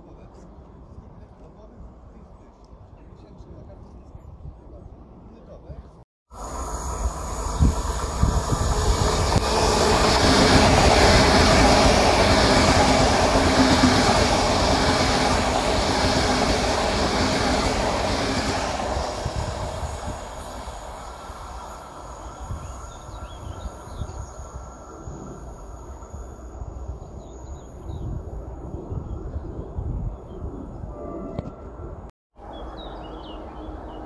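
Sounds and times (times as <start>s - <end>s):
train wheels on rails: 6.4s - 26.0s.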